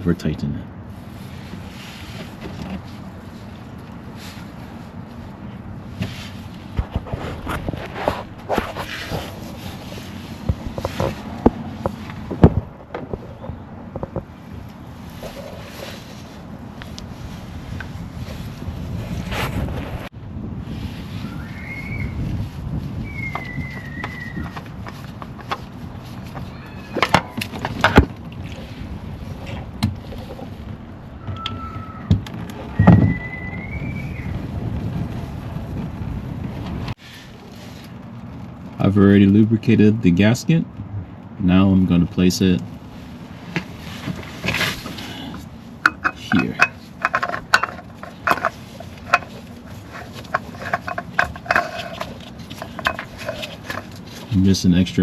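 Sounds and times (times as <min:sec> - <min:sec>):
oil filter clicking and tapping: 0:45.8 - 0:54.0
tools and parts knocking: 0:45.8 - 0:54.0.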